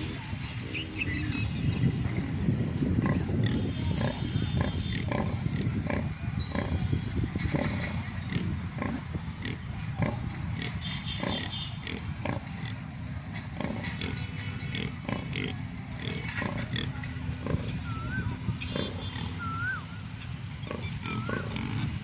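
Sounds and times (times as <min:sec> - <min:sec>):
pigs grunting: 0:03.0 - 0:12.8, 0:13.4 - 0:19.4, 0:20.6 - 0:22.0
pigs squealing: 0:10.0 - 0:12.4, 0:13.6 - 0:19.8, 0:20.6 - 0:21.9.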